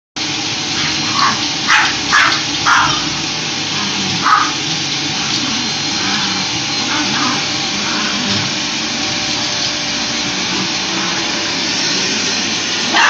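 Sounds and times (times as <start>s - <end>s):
vacuum cleaner running: 0.2s - 13.0s
dog barking: 0.8s - 3.1s, 3.9s - 4.6s.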